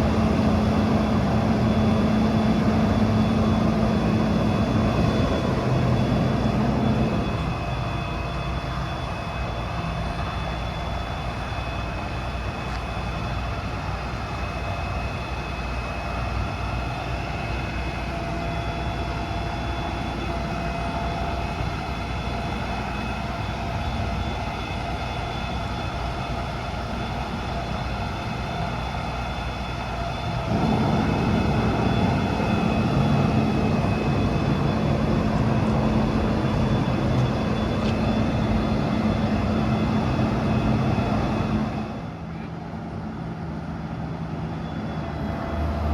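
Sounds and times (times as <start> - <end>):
diesel truck engine running: 0.0 - 42.3.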